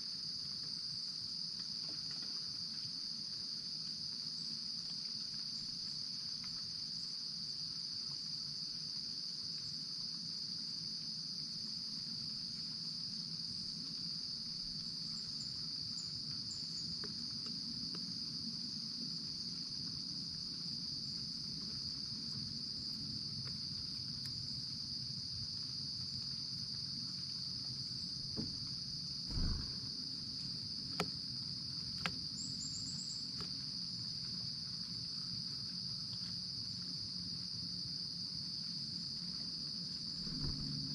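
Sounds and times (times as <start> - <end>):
crickets trilling: 0.0 - 40.9
dull knock: 29.3 - 29.9.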